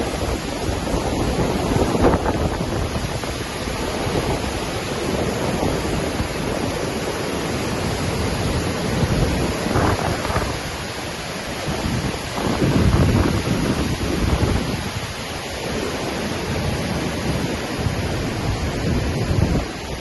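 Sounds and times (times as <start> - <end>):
waterfall crashing: 0.0 - 20.0
wind buffeting microphone: 0.0 - 20.0.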